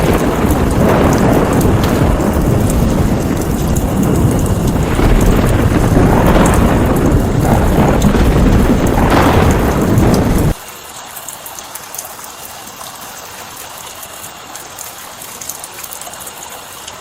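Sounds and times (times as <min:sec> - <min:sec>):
deep continuous rumble: 0:00.0 - 0:10.6
heavy rain falling: 0:00.0 - 0:17.0.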